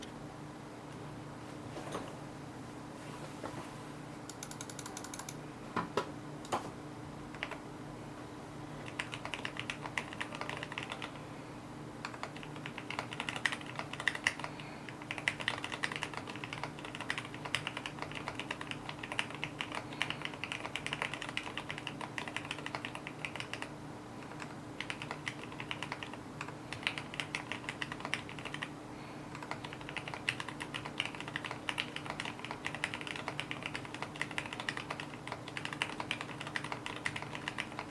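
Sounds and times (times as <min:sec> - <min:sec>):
faint steady hum: 0:00.0 - 0:37.9
mechanical keyboard typing: 0:04.3 - 0:05.4, 0:07.3 - 0:07.6, 0:08.8 - 0:11.2, 0:12.0 - 0:28.7, 0:29.3 - 0:37.9.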